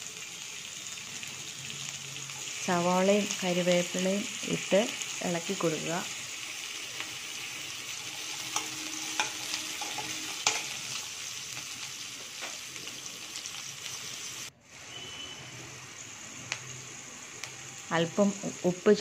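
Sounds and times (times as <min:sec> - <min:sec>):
onions sizzling in hot oil: 0:00.0 - 0:19.0
metal spoon clicking against pan: 0:08.5 - 0:10.8.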